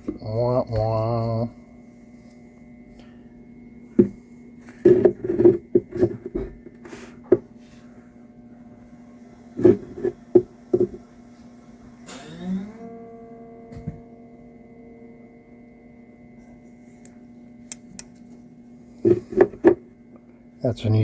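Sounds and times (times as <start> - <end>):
dulcimer strings strummed: 9.6 - 17.8.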